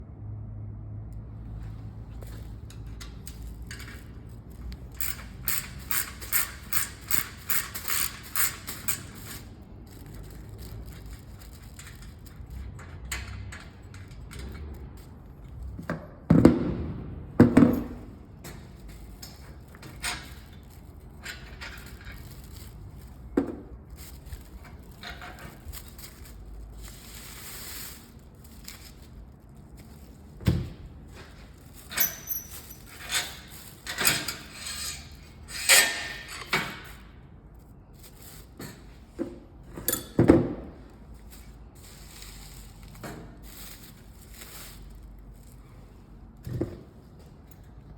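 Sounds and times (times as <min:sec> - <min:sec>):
ratchet wrench clicking: 0:02.7 - 0:09.5
tools knocking and clicking: 0:39.2 - 0:40.6.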